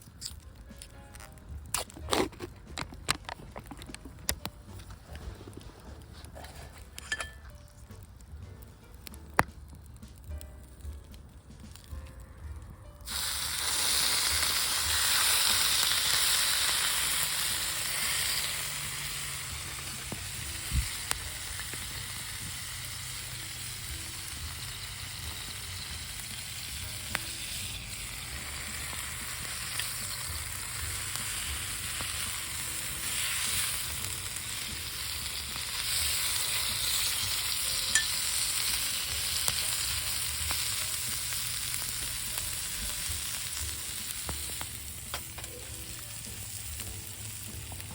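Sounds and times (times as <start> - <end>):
fat popping: 0.2 - 7.5
meat sizzling on a griddle: 13.0 - 47.9.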